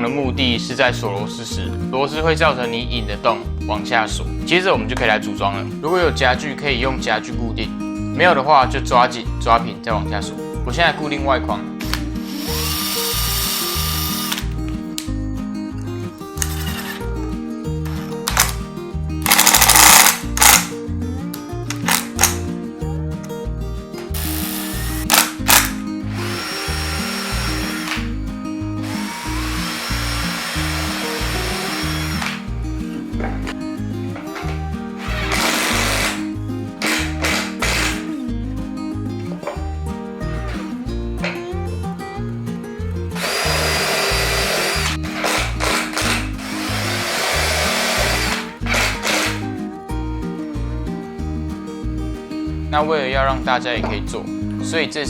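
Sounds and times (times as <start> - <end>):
power driver motor whine: 12.3 - 14.5, 24.2 - 28.1, 28.8 - 32.4, 43.2 - 49.4
background music with bass beat: 30.8 - 46.8, 47.4 - 54.7.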